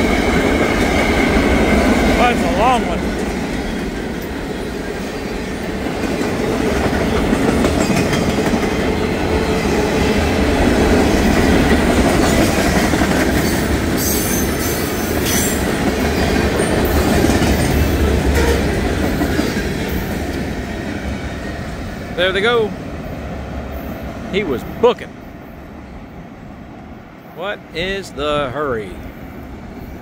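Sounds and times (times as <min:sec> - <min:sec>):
freight train wheels clattering: 0:00.0 - 0:22.0.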